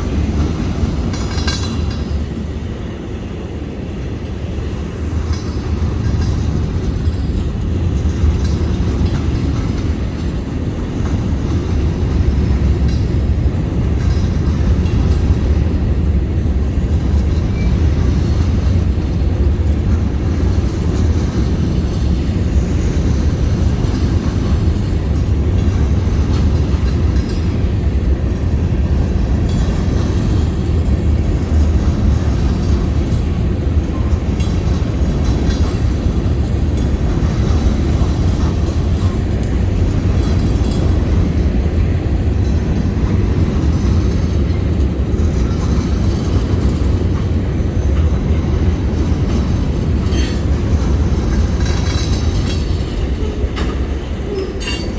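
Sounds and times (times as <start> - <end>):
freight train rumbling past: 0.0 - 54.9.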